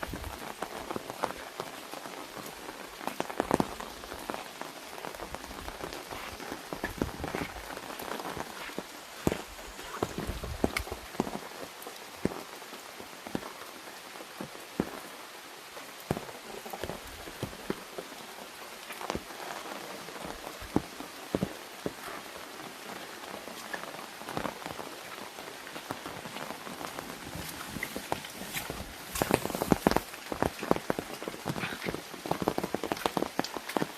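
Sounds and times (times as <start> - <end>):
rain drops tapping on umbrella: 0.0 - 33.9.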